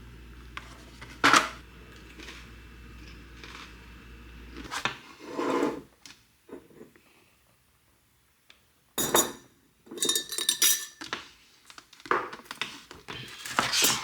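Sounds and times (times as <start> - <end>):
low hum: 0.0 - 4.7.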